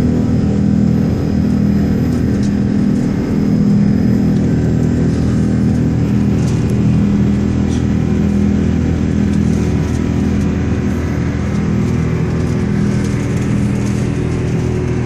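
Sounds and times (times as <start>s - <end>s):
jet engine rumble: 0.0s - 15.0s.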